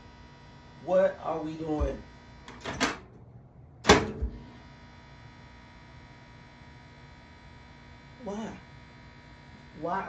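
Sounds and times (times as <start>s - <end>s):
steady electrical hum: 0.0s - 10.0s
microwave door clunk: 1.8s - 3.1s, 3.8s - 4.4s
microwave rattle: 1.8s - 3.2s, 3.8s - 4.4s.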